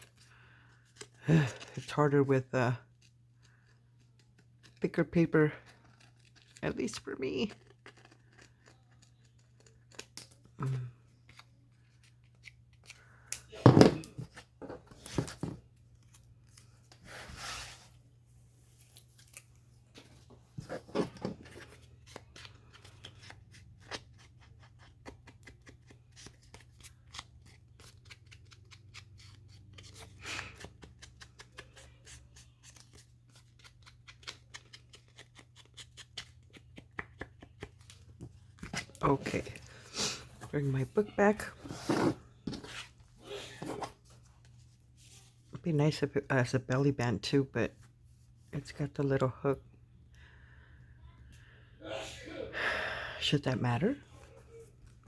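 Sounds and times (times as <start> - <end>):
scissors snipping paper: 5.6 - 10.4, 21.5 - 37.8.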